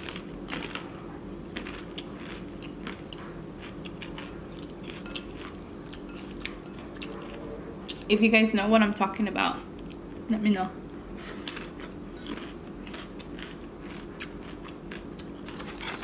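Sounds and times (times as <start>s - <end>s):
crunching crisp tostada: 0.0s - 7.4s, 11.3s - 16.0s
low steady hum: 0.0s - 16.0s.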